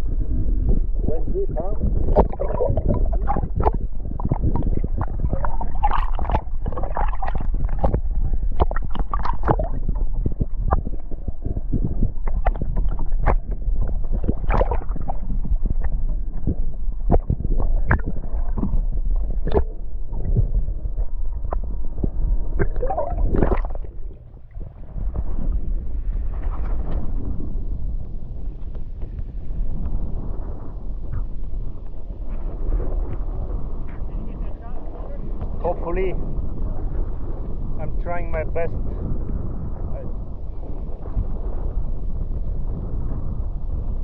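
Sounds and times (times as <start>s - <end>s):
low rumble: 0.0s - 44.0s
water slapping against kayak hull: 1.9s - 20.6s, 21.4s - 24.2s.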